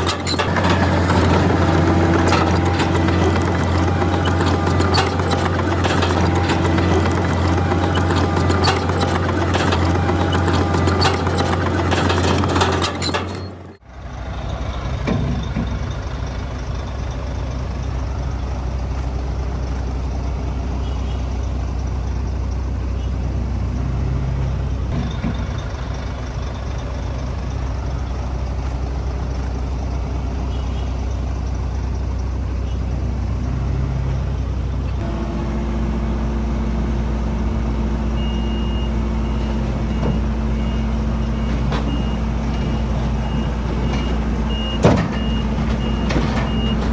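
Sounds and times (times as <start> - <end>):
heavy diesel machinery running: 0.0 - 46.9
reversing alarm beeping: 38.0 - 46.9.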